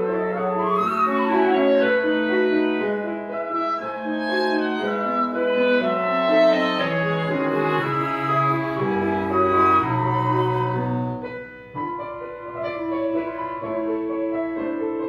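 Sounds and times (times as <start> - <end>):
wind quintet playing chamber music: 0.0 - 11.4.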